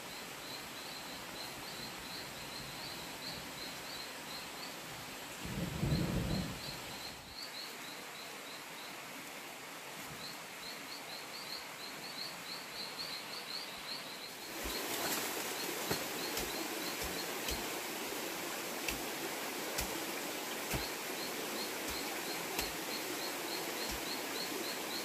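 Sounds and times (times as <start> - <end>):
forest ambience: 0.0 - 25.0
branches rustling: 14.4 - 25.0
hand tool digging into earth: 15.8 - 17.7, 19.8 - 20.1, 20.7 - 21.1, 21.8 - 23.1.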